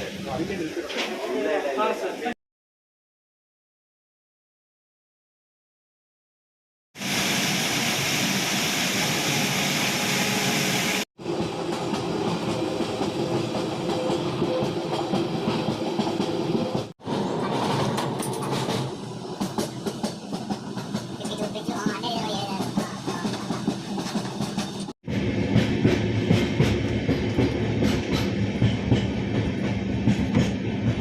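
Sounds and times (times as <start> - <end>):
train running on rails: 7.0 - 31.0.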